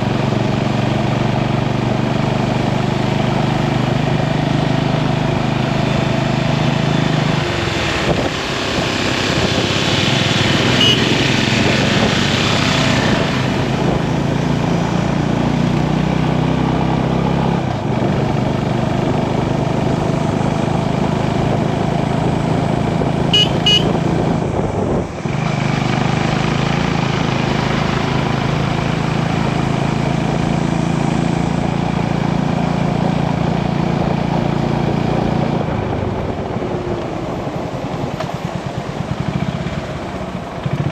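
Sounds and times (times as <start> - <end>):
motorcycle engine running: 0.0 - 40.9
road and wind noise: 0.0 - 40.9
short high beeps: 10.8 - 11.2, 23.4 - 23.9.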